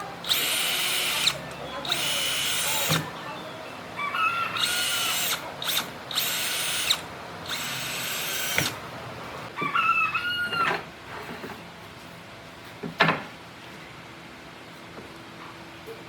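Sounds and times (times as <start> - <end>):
electric drill running: 0.2 - 3.1, 4.5 - 8.8.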